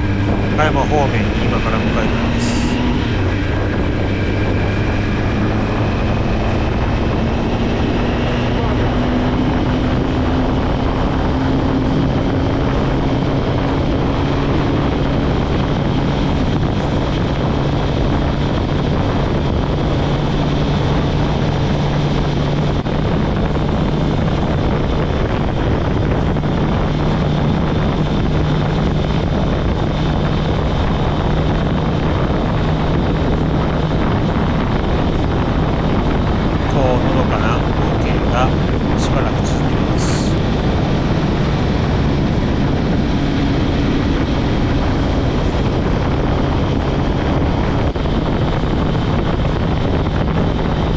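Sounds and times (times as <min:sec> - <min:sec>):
riding noise rush: 0:00.0 - 0:17.3, 0:32.2 - 0:48.6
motorcycle engine cruising: 0:00.0 - 0:50.9.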